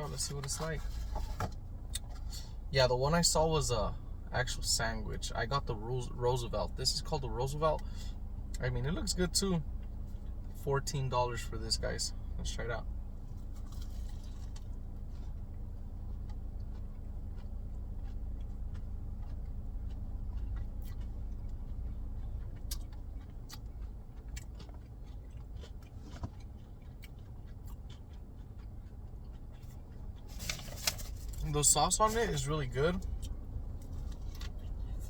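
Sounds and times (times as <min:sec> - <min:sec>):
car engine idling: 0:00.0 - 0:35.0
person chewing food: 0:13.1 - 0:31.6, 0:32.3 - 0:35.0.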